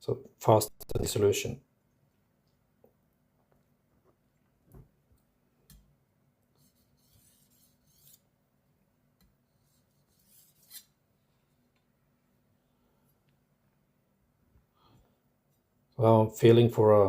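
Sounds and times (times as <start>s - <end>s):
knife scraping on sharpening plate: 6.6s - 8.2s, 10.1s - 10.9s.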